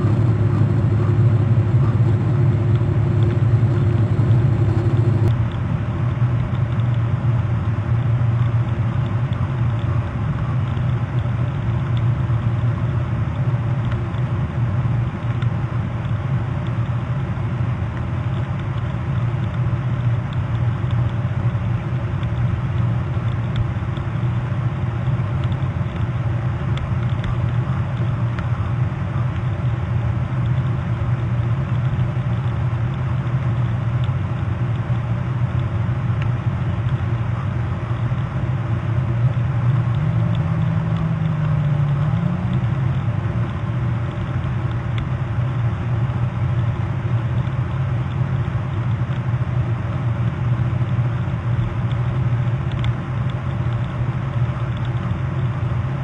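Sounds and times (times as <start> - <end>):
higher hum: 0.0 - 5.4
low mechanical rumble with hum: 0.0 - 56.0.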